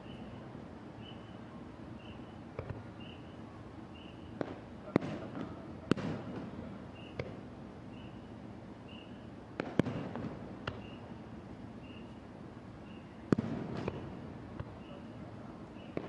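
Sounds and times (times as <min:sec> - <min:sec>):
fireworks bangs with echo: 0:04.4 - 0:07.4, 0:09.6 - 0:10.9, 0:13.3 - 0:15.0.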